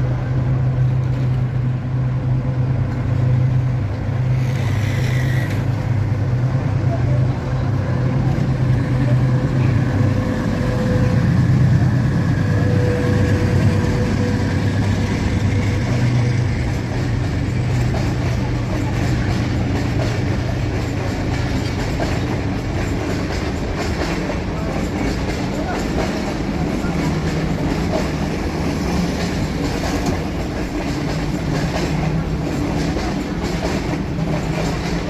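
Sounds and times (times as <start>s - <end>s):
diesel locomotive engine drone: 0.0s - 35.0s
wheels on rails: 4.2s - 5.8s.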